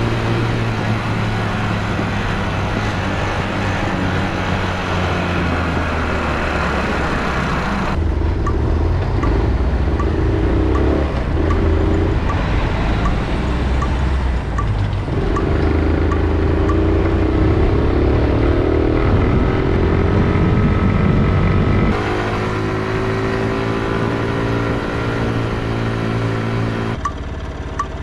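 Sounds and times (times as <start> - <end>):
motorcycle engine running: 0.0 - 28.0
light ticking: 8.4 - 17.7.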